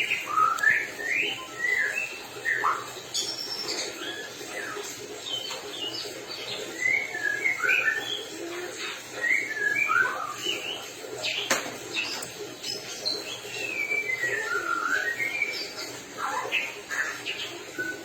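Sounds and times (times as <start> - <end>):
bird singing whistled notes: 0.0 - 4.8, 9.2 - 10.8, 13.1 - 18.0.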